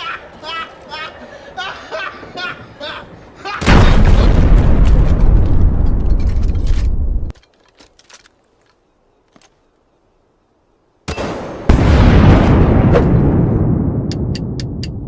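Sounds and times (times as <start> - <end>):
loud deep booming: 3.6 - 7.3, 11.7 - 14.6.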